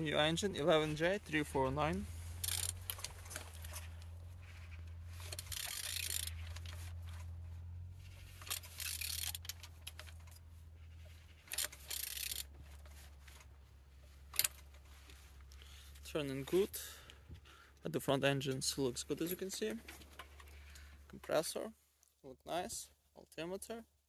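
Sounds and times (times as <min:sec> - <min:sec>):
engine scraping pushes: 0:00.0 - 0:16.9
steady low hum: 0:00.0 - 0:21.4
engine metallic clicks: 0:00.2 - 0:17.2.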